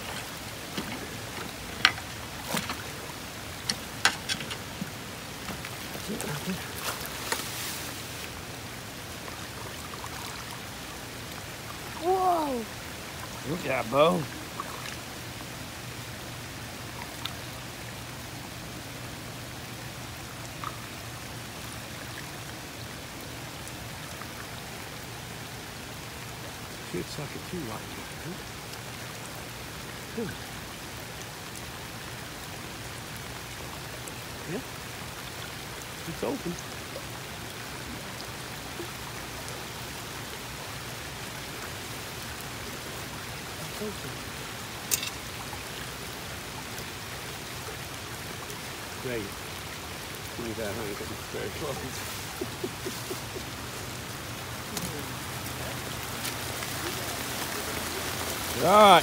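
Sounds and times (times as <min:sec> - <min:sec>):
steady rain: 0:00.0 - 0:59.0
water running through ditch: 0:00.0 - 0:59.0.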